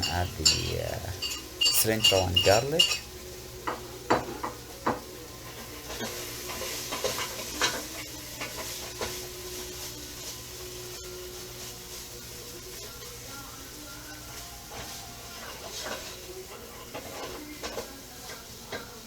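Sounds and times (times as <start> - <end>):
food sizzling in a pan: 0.0 - 19.0
utensil scraping a pan: 5.5 - 10.4, 14.3 - 19.0.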